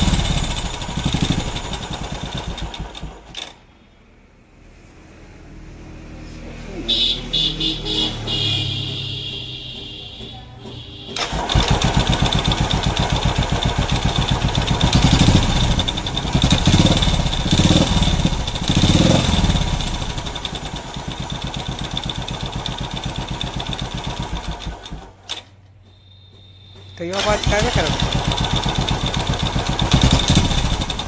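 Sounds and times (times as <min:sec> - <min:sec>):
motorcycle engine revving and idling: 0:00.0 - 0:03.6, 0:07.4 - 0:31.0.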